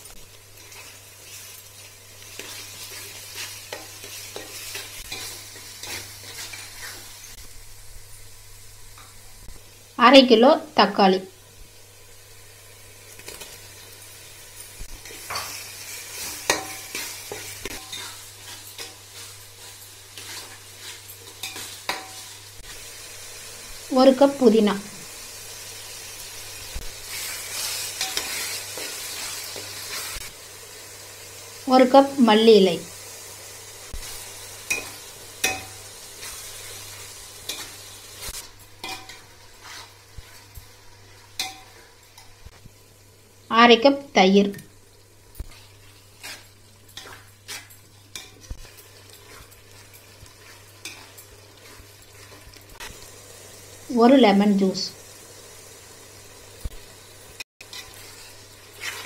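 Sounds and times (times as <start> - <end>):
vegetables sizzling in oil: 0.0 - 59.0
spatula scraping a pot: 15.0 - 22.2, 38.8 - 40.5, 45.5 - 52.5, 57.6 - 59.0.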